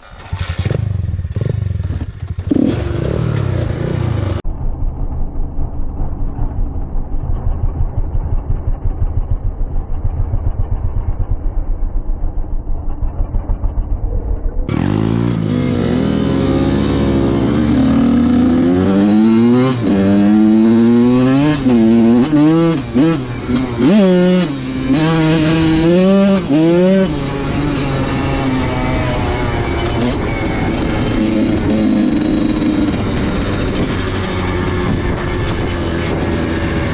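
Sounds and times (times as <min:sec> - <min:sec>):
dirt bike engine revving: 0:00.0 - 0:04.4, 0:14.7 - 0:36.9.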